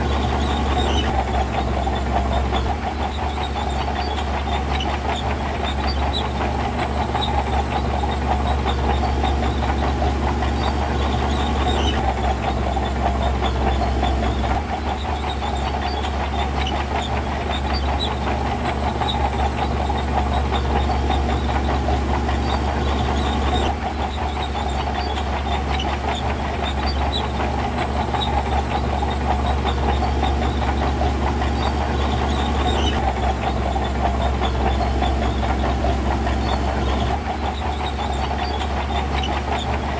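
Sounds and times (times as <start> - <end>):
diesel machinery running: 0.0 - 39.9.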